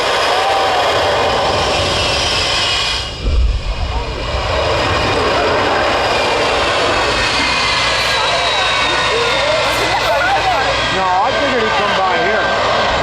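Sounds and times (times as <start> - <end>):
jet engines whining: 0.0 - 13.0
short low rumble: 0.6 - 10.9.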